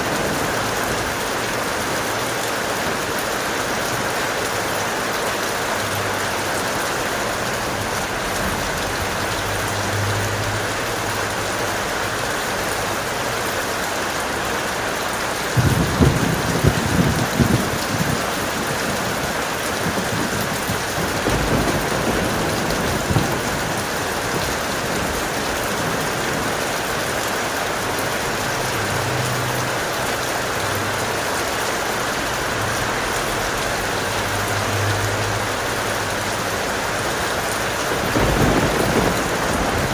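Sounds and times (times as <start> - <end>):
thunder crack and rumble: 0.0 - 4.1, 15.5 - 29.9, 37.0 - 39.9
heavy rain: 0.0 - 39.9.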